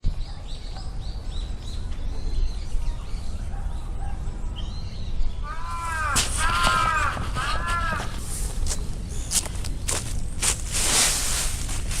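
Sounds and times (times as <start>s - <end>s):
birds chirping: 0.1s - 12.0s
steady low rumble: 5.1s - 12.0s
bird repeated arching calls: 5.4s - 9.6s.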